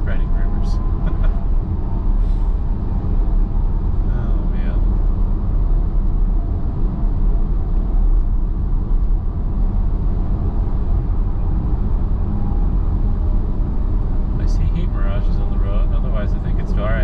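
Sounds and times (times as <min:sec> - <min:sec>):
wind noise inside car: 0:00.0 - 0:17.0.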